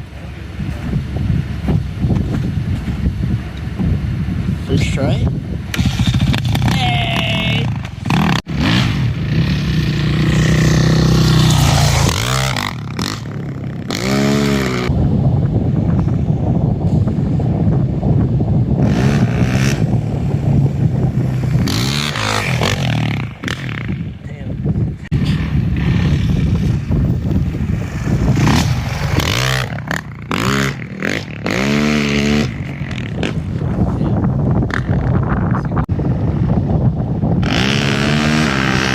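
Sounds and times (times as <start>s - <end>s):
vehicle engine revving: 8.0s - 14.9s, 18.8s - 24.1s, 25.1s - 33.9s, 37.3s - 38.9s.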